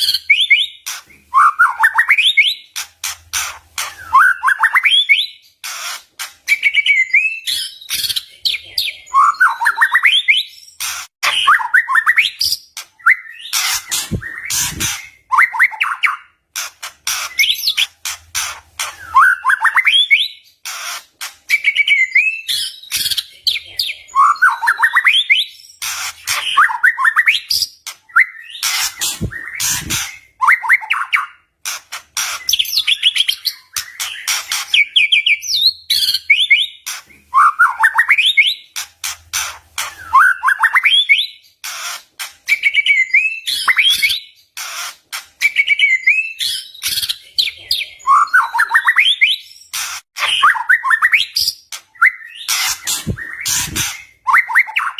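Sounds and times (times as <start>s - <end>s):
bird singing trilled phrases: 3.8s - 16.4s, 18.9s - 31.5s, 45.4s - 54.9s.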